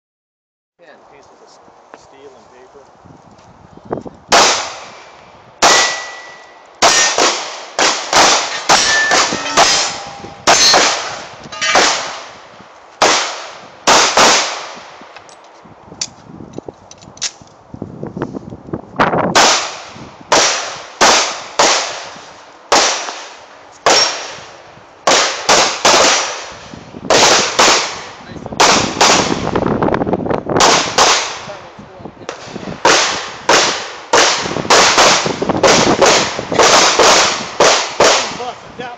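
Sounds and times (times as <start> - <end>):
pistol shots with echo: 4.3 - 5.0, 5.6 - 12.4, 13.0 - 14.8, 19.4 - 24.4, 25.0 - 26.5, 27.1 - 29.5, 30.6 - 31.5, 32.3 - 38.5
steel target clanging: 5.7 - 7.2, 8.4 - 12.1.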